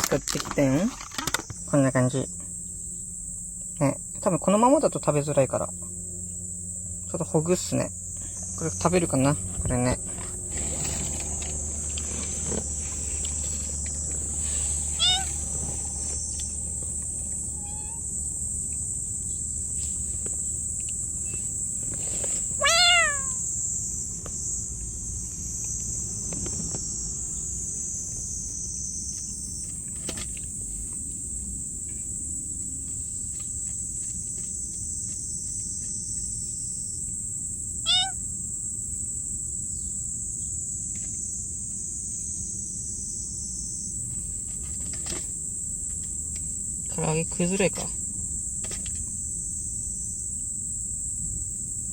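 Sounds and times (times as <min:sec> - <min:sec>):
crickets chirping: 0:00.0 - 0:51.9
cat meowing: 0:14.8 - 0:15.8, 0:17.4 - 0:18.1, 0:22.6 - 0:23.4, 0:37.8 - 0:38.2.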